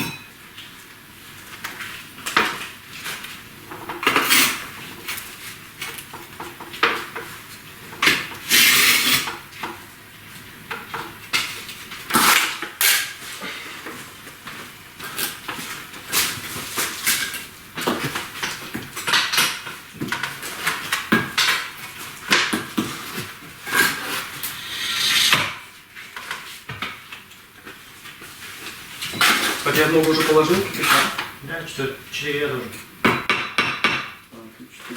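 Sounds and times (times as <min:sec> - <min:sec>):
trowel scraping mortar: 0:23.7 - 0:25.7.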